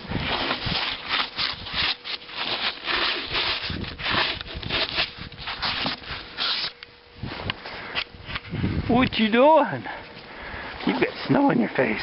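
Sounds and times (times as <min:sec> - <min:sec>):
crunching and scraping in snow: 0:00.0 - 0:07.8.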